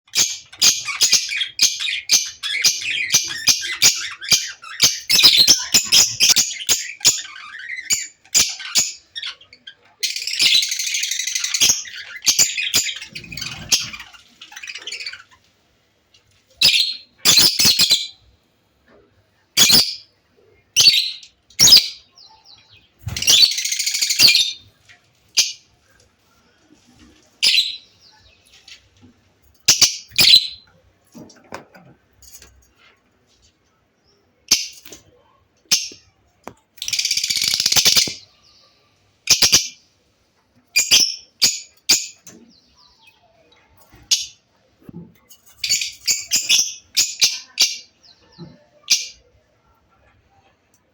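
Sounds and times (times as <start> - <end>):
parrot squawking and chirping: 0.1 - 15.4, 16.6 - 18.2, 19.6 - 20.1, 20.7 - 22.1, 23.1 - 24.6, 27.4 - 27.9, 29.6 - 30.7, 36.8 - 38.2, 39.2 - 39.8, 40.7 - 42.2, 45.6 - 47.9.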